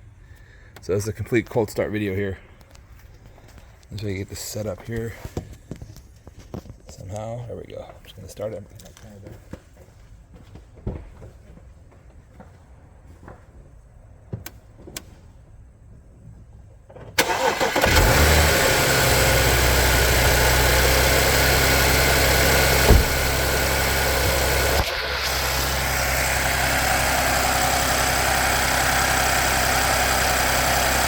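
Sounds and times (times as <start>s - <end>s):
car engine cranking and idling: 17.1s - 31.0s.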